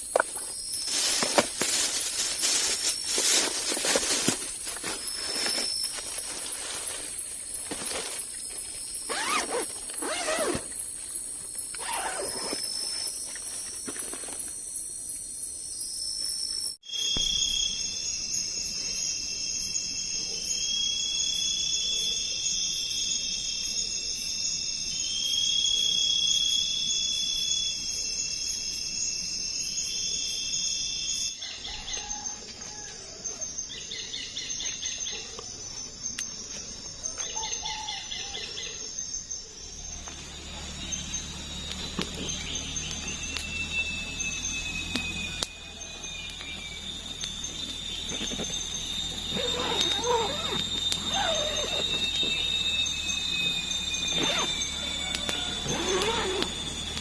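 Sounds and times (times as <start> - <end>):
insects trilling and buzzing: 0.0 - 57.0
low pulsing insect trill: 0.0 - 57.0
animal calls: 49.3 - 52.6.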